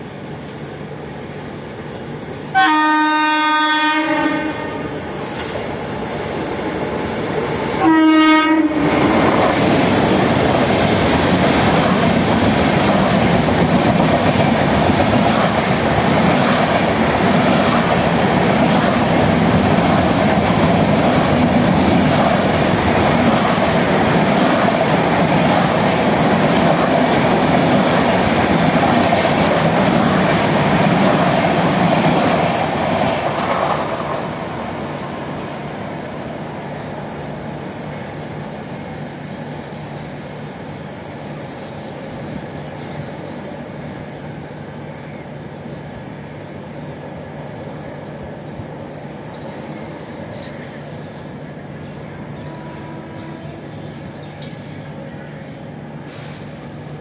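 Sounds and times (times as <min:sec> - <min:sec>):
train rumble and wheel clatter: 0:00.0 - 0:57.0
train horn: 0:02.5 - 0:05.0, 0:07.8 - 0:09.1, 0:52.3 - 0:53.8.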